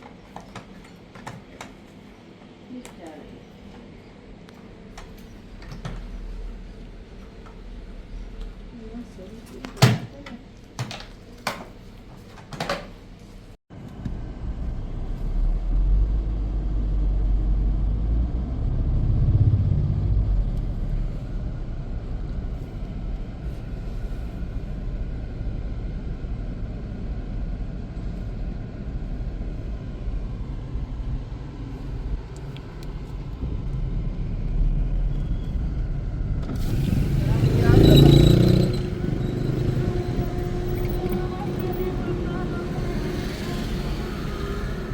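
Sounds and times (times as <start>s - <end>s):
motor vehicle rumbling: 13.7s - 44.9s.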